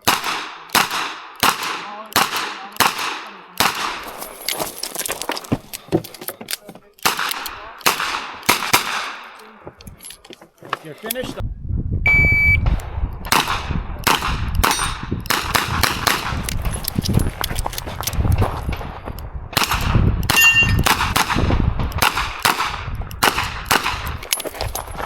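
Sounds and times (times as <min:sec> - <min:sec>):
revolver gunshots: 0:00.0 - 0:04.1, 0:07.0 - 0:09.4, 0:12.6 - 0:16.4, 0:19.5 - 0:24.2
shot timer beep: 0:12.1 - 0:12.6, 0:20.4 - 0:20.8
steel targets clanging: 0:20.3 - 0:20.9.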